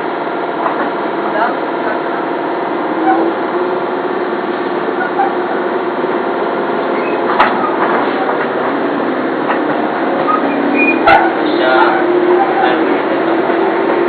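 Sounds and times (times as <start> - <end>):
train doors hissing: 2.8 - 14.0.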